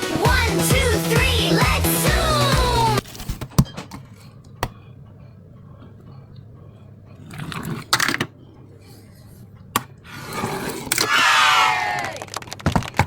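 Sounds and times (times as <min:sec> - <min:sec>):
clatter of small hard objects: 0:12.0 - 0:13.0.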